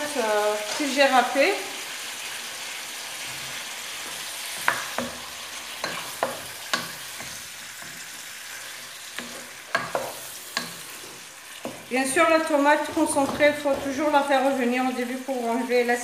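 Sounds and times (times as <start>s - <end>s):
meat and onion sizzling in pot: 0.0s - 16.0s
wooden spoon knocking and scraping pot: 4.5s - 8.2s, 8.8s - 14.6s.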